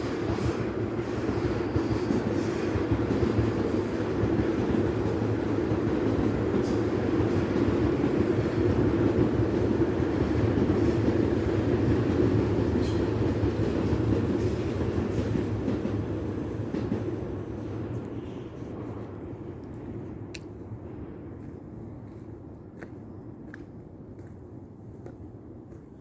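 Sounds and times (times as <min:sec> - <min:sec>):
electric train rumbling past: 0:00.0 - 0:26.0.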